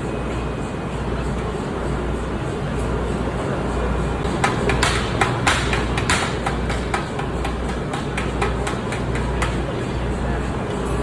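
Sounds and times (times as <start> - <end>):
low machinery hum: 0.0 - 11.0
hammer striking metal: 4.2 - 9.6.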